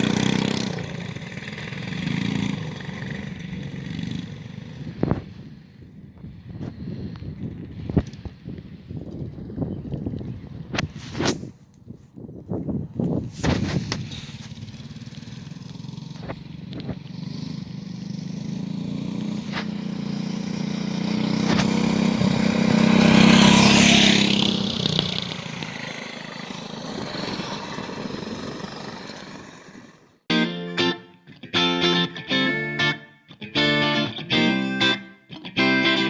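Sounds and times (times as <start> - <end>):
minibike engine running: 0.0 - 5.6, 13.5 - 30.2.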